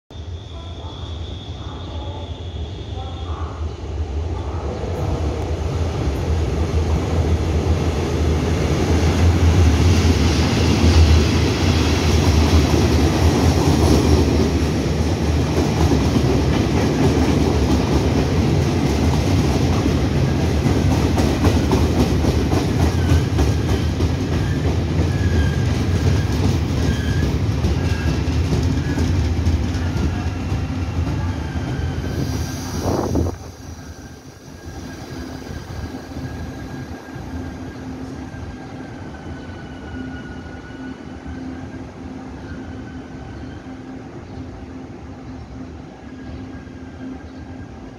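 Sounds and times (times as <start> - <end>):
train wheels rumbling on rail: 3.0 - 47.9
faint high brake squeals: 22.9 - 29.2, 33.8 - 41.7.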